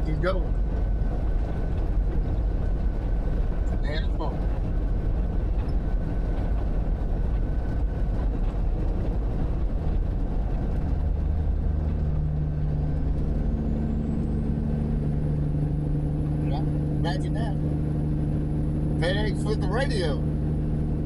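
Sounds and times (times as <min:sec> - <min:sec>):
road noise: 0:00.0 - 0:21.0
truck engine rumble: 0:00.0 - 0:21.0.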